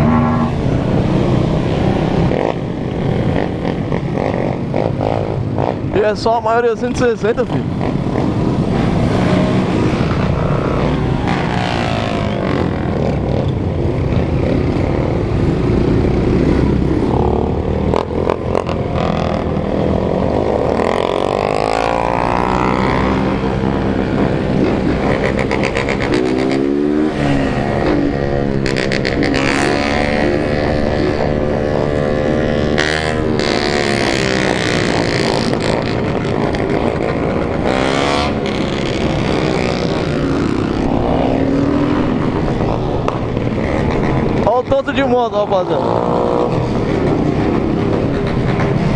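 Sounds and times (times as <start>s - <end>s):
motorcycle engines revving: 0.0s - 48.9s.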